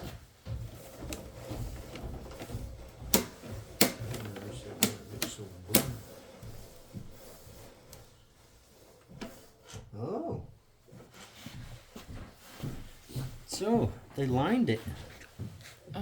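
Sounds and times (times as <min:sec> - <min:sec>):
sharp clacks and knocks: 0:00.0 - 0:06.7.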